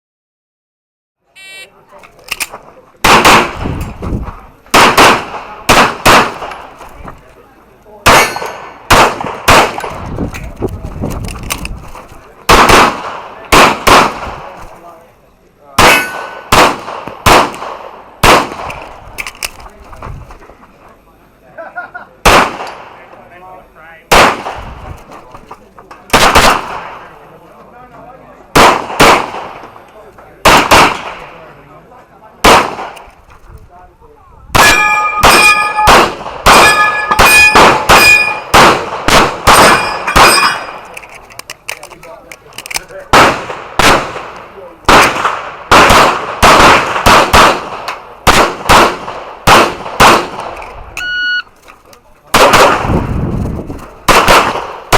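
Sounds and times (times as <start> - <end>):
handgun shots: 4.8 - 6.6, 8.1 - 10.0, 34.6 - 40.9, 42.6 - 50.6, 54.1 - 54.9
steel targets clanging: 8.1 - 8.8, 15.9 - 16.4, 34.6 - 38.5, 39.5 - 41.1.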